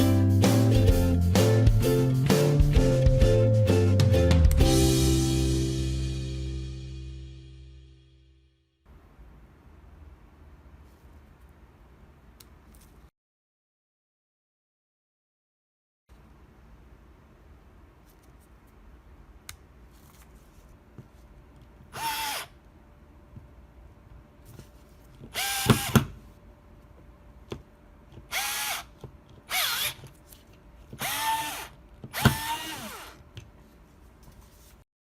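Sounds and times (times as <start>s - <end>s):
cordless screwdriver motor whine: 22.0s - 22.5s, 29.5s - 30.0s, 31.0s - 33.2s.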